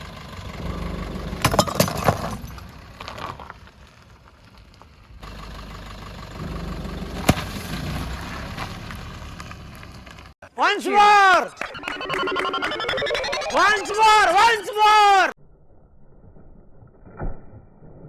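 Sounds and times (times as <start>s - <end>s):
car engine running slowly: 0.0s - 10.4s
clay pots cracking under tyres: 1.4s - 5.2s.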